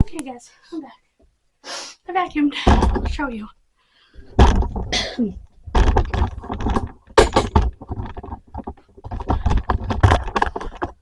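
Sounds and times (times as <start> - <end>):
recording device handling noise: 4.2 - 11.0.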